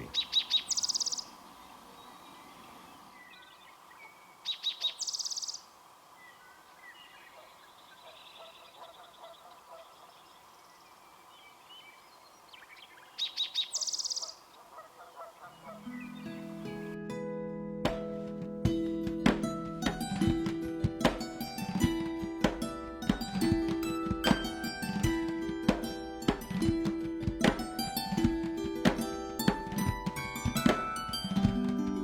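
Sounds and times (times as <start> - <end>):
faint bird calls: 0.0 - 16.7
bird song with fast trill: 0.0 - 17.0
guitar music: 15.8 - 32.0.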